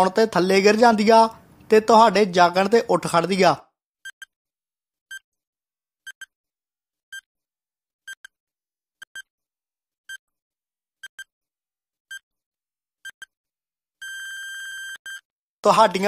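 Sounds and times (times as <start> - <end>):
electronic timer ticks: 4.0 - 4.3, 6.1 - 6.3, 8.1 - 8.3, 9.0 - 9.3, 11.0 - 11.3, 13.0 - 13.3.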